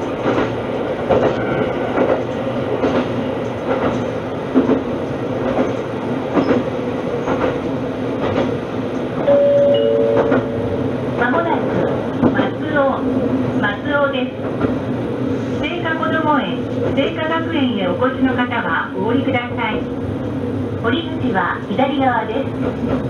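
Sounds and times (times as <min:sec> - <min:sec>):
train wheels clacking on rail joints: 0:00.0 - 0:09.1, 0:10.0 - 0:10.6
two-note tone: 0:09.3 - 0:10.8.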